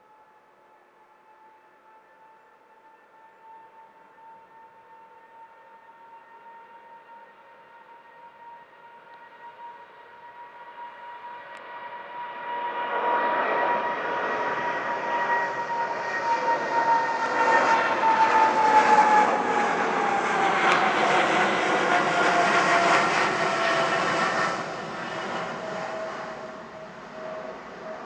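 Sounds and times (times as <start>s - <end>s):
jet engine whine: 0.0s - 28.0s
jet engines roaring: 11.3s - 28.0s.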